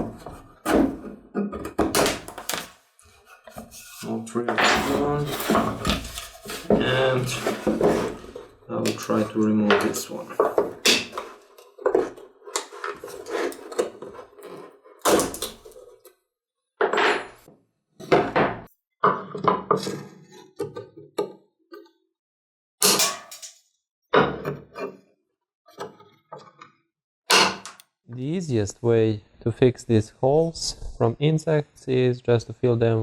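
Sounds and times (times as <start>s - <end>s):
hand tools knocking on wood and metal: 4.5s - 14.2s.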